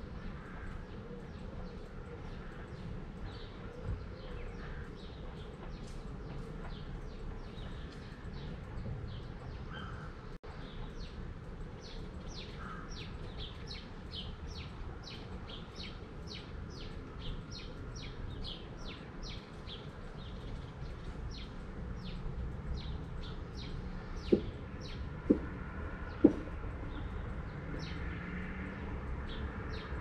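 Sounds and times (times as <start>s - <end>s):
songbird chirping: 0.0s - 30.0s
sharp tap: 25.2s - 25.5s.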